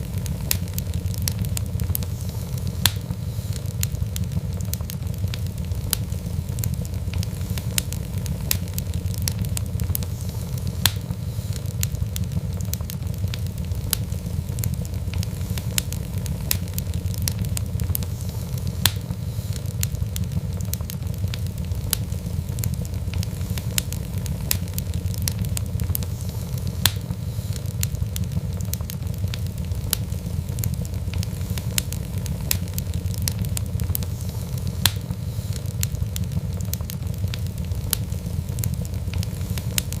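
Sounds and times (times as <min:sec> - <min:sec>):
fire crackling and popping: 0:00.0 - 0:40.0
low rumble of flames: 0:00.0 - 0:40.0.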